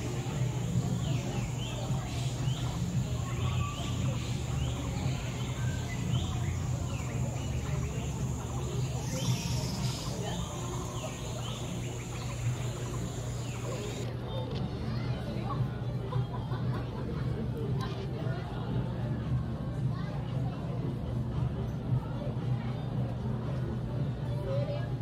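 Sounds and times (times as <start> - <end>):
birds chirping: 0.0 - 14.1
low background hum: 0.0 - 14.1.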